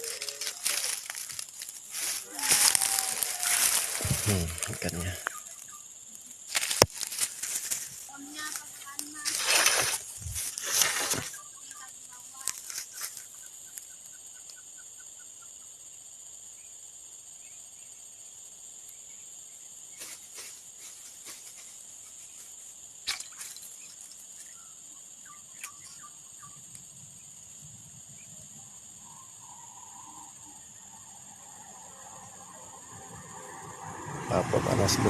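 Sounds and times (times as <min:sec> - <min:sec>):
high-pitched insect drone: 0:00.0 - 0:35.0.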